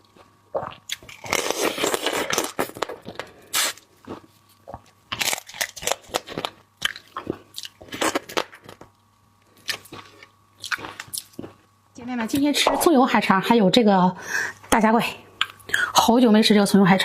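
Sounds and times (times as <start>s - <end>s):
crisp crunches: 5.1s - 8.8s.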